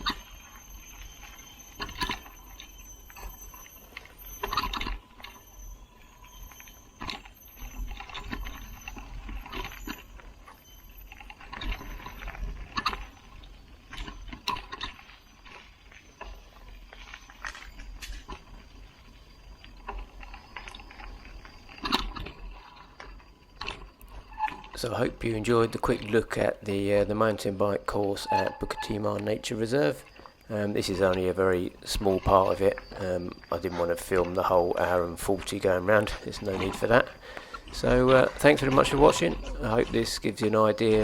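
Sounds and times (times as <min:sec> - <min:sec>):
jangle of loose parts: 0:00.0 - 0:18.6
mountain bike clattering: 0:00.0 - 0:41.0.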